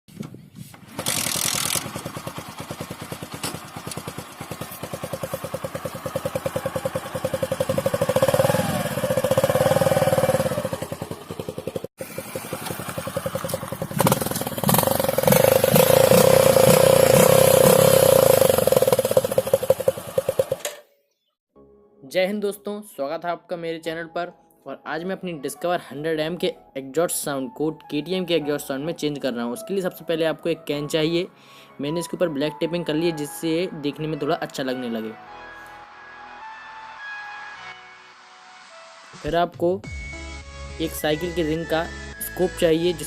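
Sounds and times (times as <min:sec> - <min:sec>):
motorcycle engine revving: 0:00.8 - 0:20.8.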